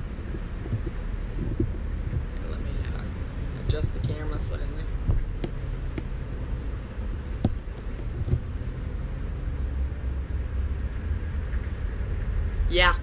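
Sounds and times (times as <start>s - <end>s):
low outdoor rumble: 0.0s - 13.0s
camera knocks: 5.1s - 6.1s, 7.4s - 8.5s.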